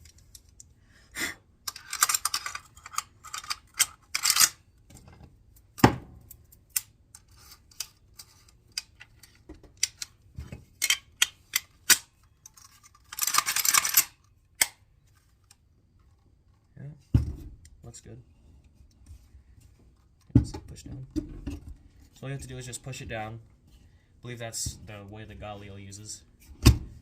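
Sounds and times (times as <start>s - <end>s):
metal rifle parts clicking: 0.0s - 0.8s, 1.7s - 4.6s, 6.2s - 16.2s.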